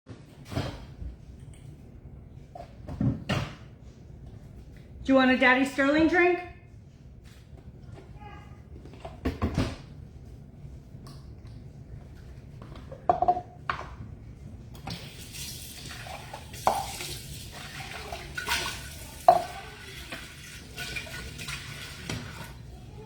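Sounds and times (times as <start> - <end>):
water running: 14.8 - 23.0
dishware clinking: 18.2 - 19.8.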